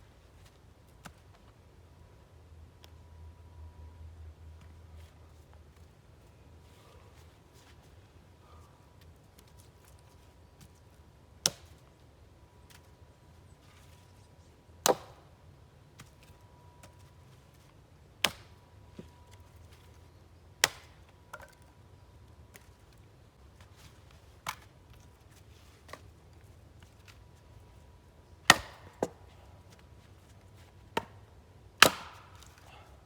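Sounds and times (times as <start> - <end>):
axe chopping wood: 11.4 - 11.7, 14.8 - 15.3, 18.2 - 19.1, 20.6 - 21.6, 28.4 - 29.2, 30.9 - 31.2, 31.8 - 32.6.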